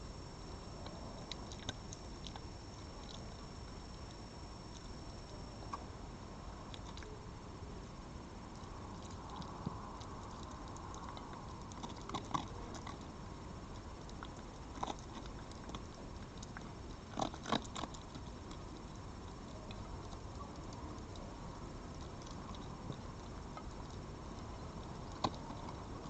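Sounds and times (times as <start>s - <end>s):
steady background hiss: 0.0s - 26.0s
animal eating soft clicks: 0.3s - 6.0s, 6.6s - 7.4s, 8.4s - 26.0s.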